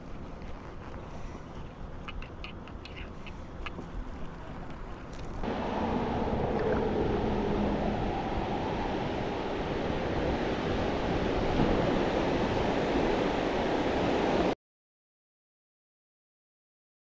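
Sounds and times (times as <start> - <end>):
fast river water rushing: 5.4 - 14.6
wind on microphone: 5.4 - 14.6.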